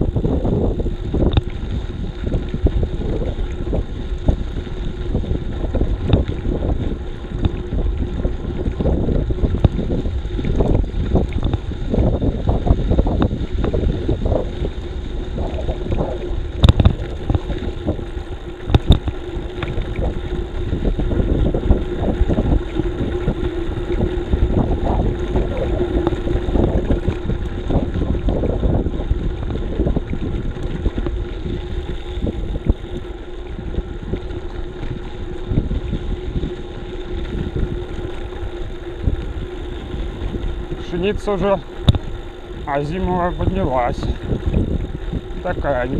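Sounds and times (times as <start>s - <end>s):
faint hum: 0.0s - 45.9s
low rumble: 0.0s - 45.9s
wind buffeting microphone: 0.0s - 45.9s.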